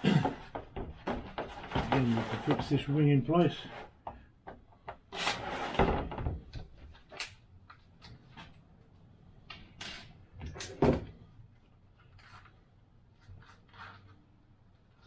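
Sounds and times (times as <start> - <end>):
plastic parts clicking and knocking: 0.2 - 2.7
plastic parts rustling scrape: 1.4 - 2.9, 13.2 - 14.2.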